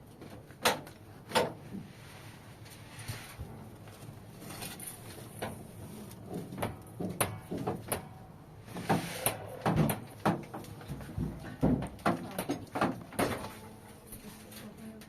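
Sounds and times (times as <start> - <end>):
objects knocking and clattering: 6.2 - 13.7.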